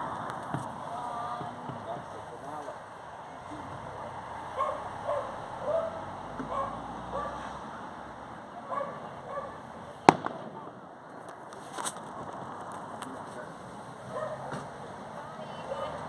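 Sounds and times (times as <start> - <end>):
outdoor crowd noise: 0.0 - 16.0
firework bang: 10.0 - 11.3.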